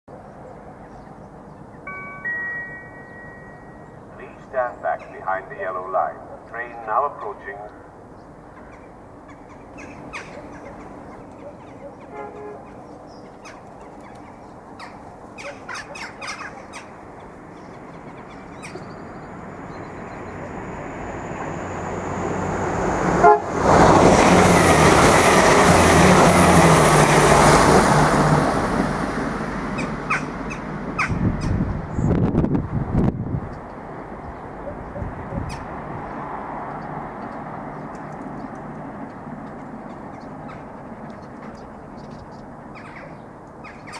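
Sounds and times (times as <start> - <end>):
train passing: 0.1 - 43.9
sharp clicks: 37.9 - 39.2.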